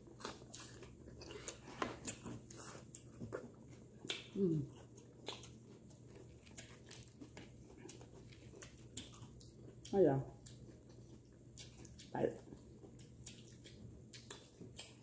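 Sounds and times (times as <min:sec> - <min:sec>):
chewing and biting: 0:00.0 - 0:15.0
person humming mm: 0:04.4 - 0:04.7.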